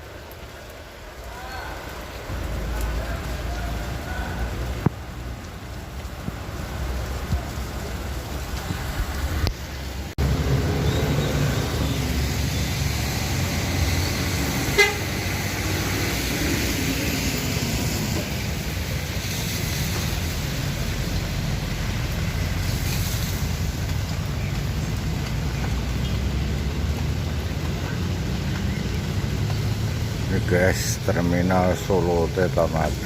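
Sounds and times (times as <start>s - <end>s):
drizzling rain hiss: 0.0s - 33.0s
vehicle engines rumbling: 0.0s - 33.0s
bus horn toot: 14.7s - 15.2s.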